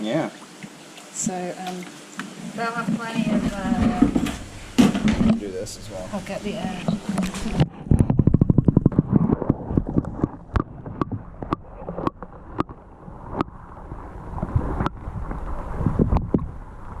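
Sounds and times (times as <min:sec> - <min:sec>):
water sloshing: 0:00.4 - 0:17.0
low rumble: 0:03.2 - 0:11.5.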